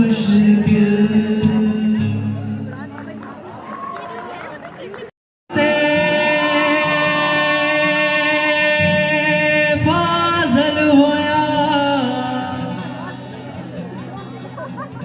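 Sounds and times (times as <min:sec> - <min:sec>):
person singing wordless notes: 0:05.5 - 0:13.3.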